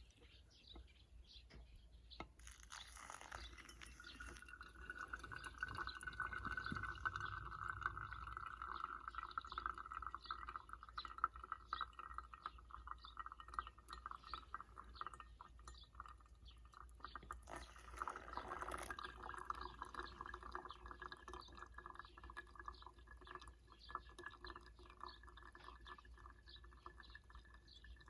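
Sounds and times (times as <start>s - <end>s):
hot water pouring: 2.2s - 28.0s
small ticks and crackles: 2.3s - 4.6s.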